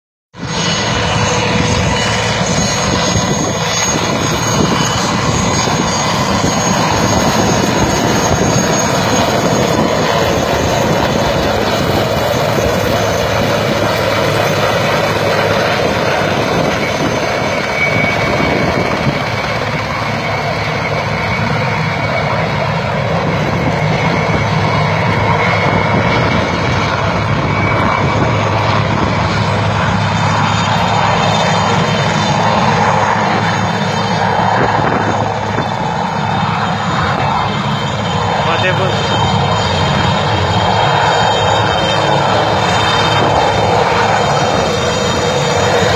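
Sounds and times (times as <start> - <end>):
aircraft engine running: 0.3 - 45.9.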